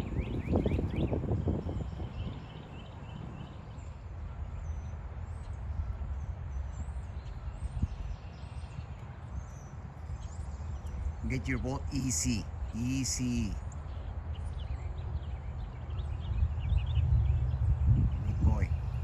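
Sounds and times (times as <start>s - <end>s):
wind rumbling on microphone: 0.0s - 11.3s, 13.6s - 19.0s
small birds chirping: 7.2s - 19.0s.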